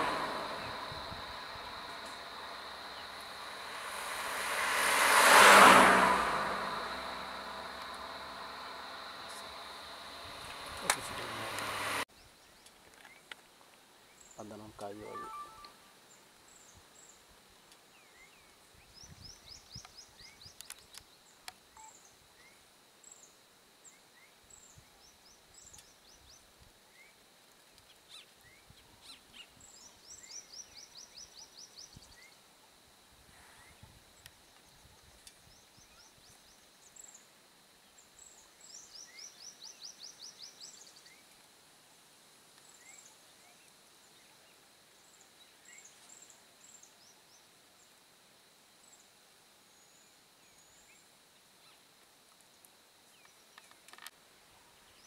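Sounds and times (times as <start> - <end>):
faint steady high tone: 14.8 - 15.9
bird chirps: 15.0 - 15.8.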